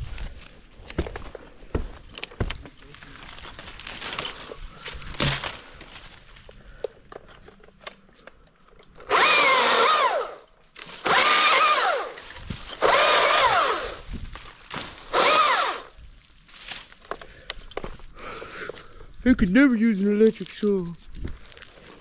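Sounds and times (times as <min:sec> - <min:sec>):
chainsaw revving: 0:09.1 - 0:10.4, 0:11.0 - 0:14.1, 0:15.0 - 0:15.9.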